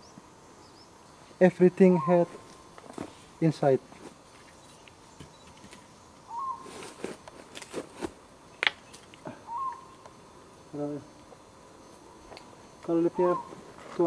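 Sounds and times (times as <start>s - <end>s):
bird whistling call: 1.9s - 2.4s, 6.3s - 6.7s, 9.4s - 10.0s, 13.1s - 13.6s.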